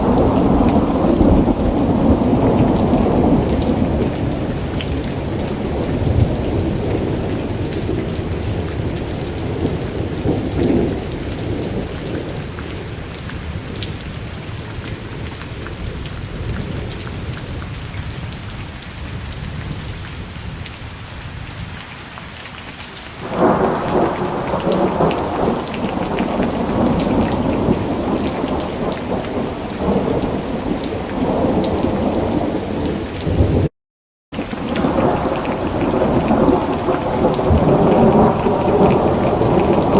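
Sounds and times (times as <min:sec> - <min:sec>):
rolling thunder: 0:00.0 - 0:12.9, 0:23.2 - 0:33.7, 0:34.4 - 0:39.9
steady rain hiss: 0:22.6 - 0:32.9.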